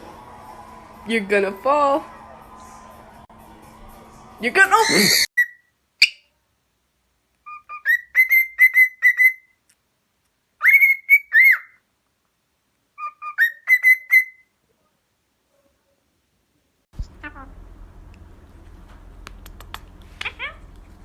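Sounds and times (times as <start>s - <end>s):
pet bird whistling a tune: 4.8s - 6.2s, 7.4s - 9.6s, 10.6s - 11.8s, 13.0s - 14.5s.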